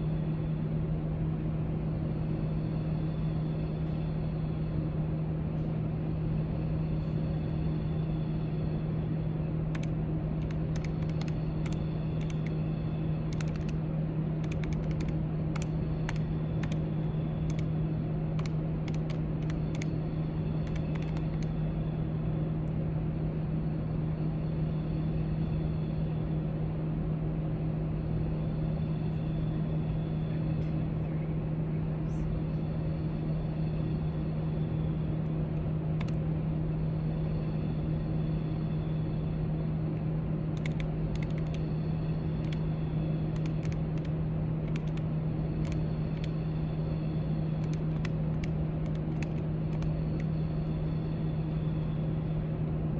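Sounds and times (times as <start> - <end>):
steady low hum: 0.0 - 52.9
light clicks: 40.6 - 41.6, 43.4 - 45.0.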